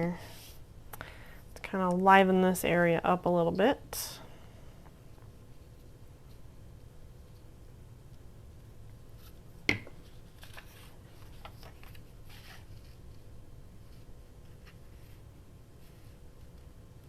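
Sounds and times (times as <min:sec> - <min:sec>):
paper rustling: 0:10.0 - 0:13.2.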